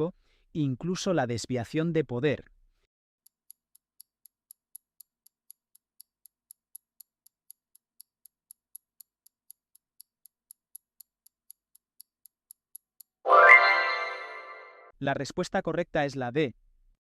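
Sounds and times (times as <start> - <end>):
faint clock ticking: 3.2 - 13.2.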